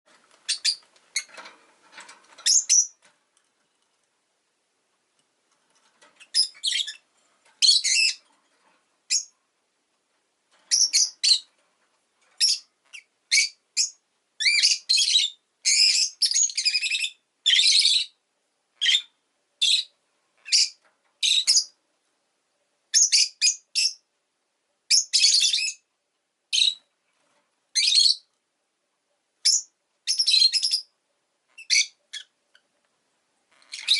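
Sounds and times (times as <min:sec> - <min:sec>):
lovebird chirping and squawking: 0:00.4 - 0:01.4, 0:02.4 - 0:03.0, 0:06.2 - 0:07.0, 0:07.6 - 0:08.2, 0:09.1 - 0:09.3, 0:10.7 - 0:11.5, 0:12.4 - 0:18.2, 0:18.8 - 0:21.7, 0:22.9 - 0:24.0, 0:24.9 - 0:25.8, 0:26.5 - 0:26.9, 0:27.7 - 0:28.3, 0:29.4 - 0:30.9, 0:31.5 - 0:32.6, 0:33.5 - 0:33.9.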